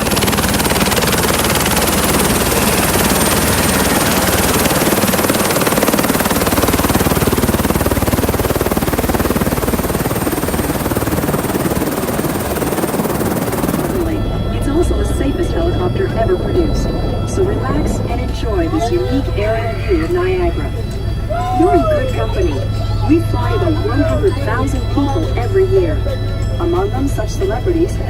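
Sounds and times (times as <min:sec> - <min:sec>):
helicopter rotor chop: 0:00.0 - 0:28.0
thin high whine: 0:09.3 - 0:28.0.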